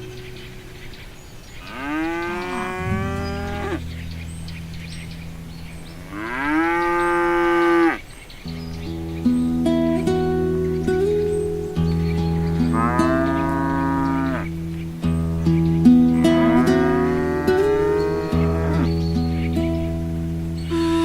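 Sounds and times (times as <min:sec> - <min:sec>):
cows mooing: 0:01.6 - 0:03.8, 0:06.0 - 0:08.0, 0:12.6 - 0:14.5, 0:16.2 - 0:19.0.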